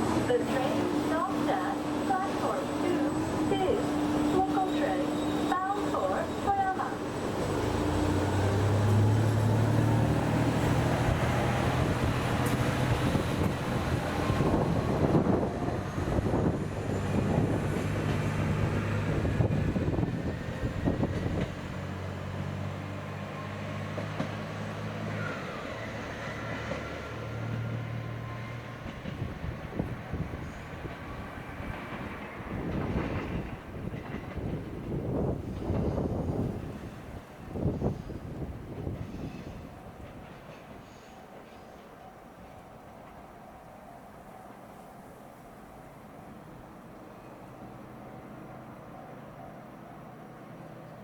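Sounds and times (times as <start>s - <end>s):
train engine hum: 0.0s - 51.0s
wheels clacking over rail joints: 5.5s - 43.4s.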